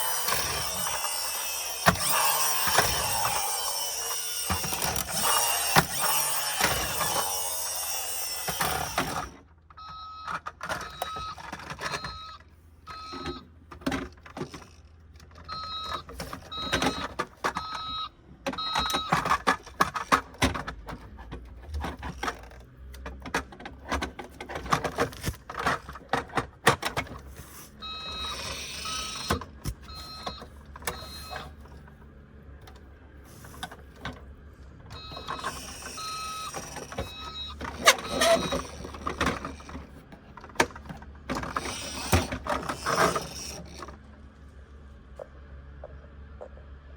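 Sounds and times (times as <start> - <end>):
plastic toy clicks and rattles: 0.0 - 9.4, 13.8 - 17.9, 18.5 - 27.3, 27.9 - 31.8, 35.0 - 44.0
electronic beeps: 9.8 - 13.4, 15.5 - 19.2, 27.8 - 31.6, 35.0 - 38.9.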